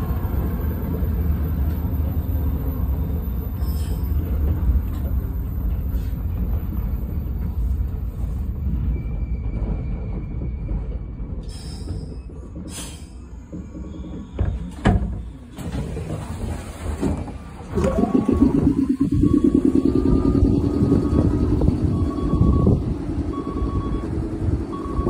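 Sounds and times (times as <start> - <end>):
train rolling rumble: 0.0 - 25.0
faint brake squeal: 3.3 - 4.3, 8.6 - 15.6.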